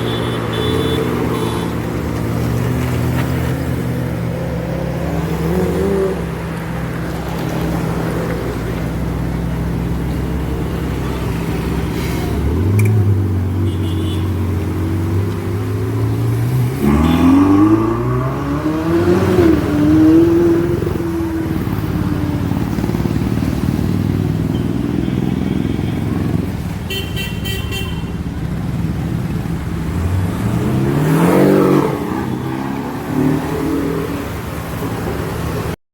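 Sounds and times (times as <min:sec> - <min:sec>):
car horn toot: 0:00.0 - 0:01.8, 0:13.6 - 0:14.4, 0:16.8 - 0:17.5, 0:24.5 - 0:28.2
car engines revving: 0:00.0 - 0:26.9, 0:28.1 - 0:35.8.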